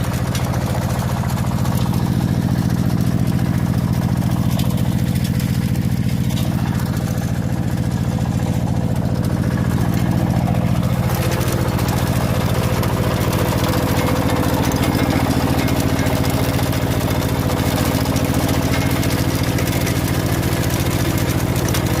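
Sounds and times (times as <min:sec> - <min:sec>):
small farm machine engine running: 0:00.0 - 0:22.0.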